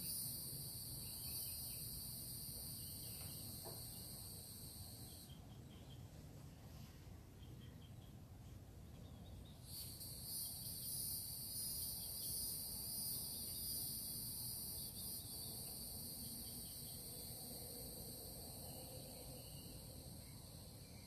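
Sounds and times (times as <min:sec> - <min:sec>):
insect buzzing trill: 0:00.0 - 0:05.3, 0:09.7 - 0:21.0.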